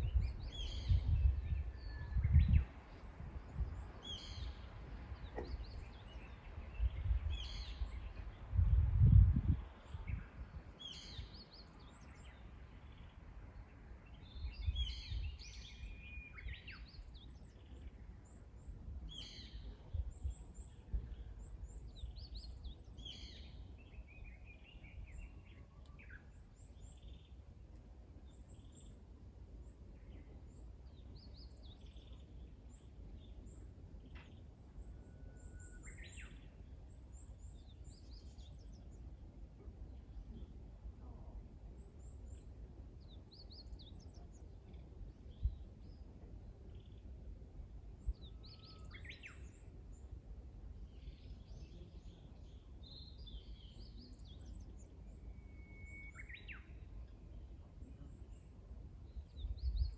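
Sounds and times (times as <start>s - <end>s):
wild birds chirping: 0.0s - 8.5s.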